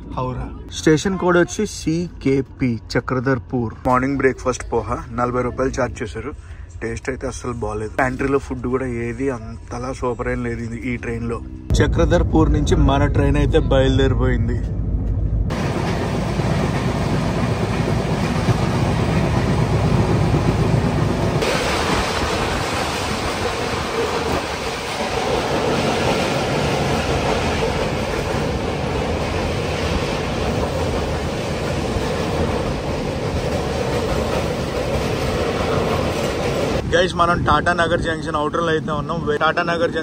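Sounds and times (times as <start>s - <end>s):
train wheels rumbling on rails: 11.7s - 40.0s.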